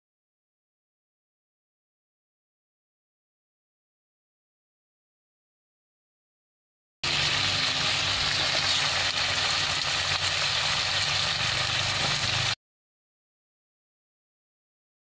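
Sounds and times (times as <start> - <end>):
spices sizzling in hot oil: 7.0 - 12.6.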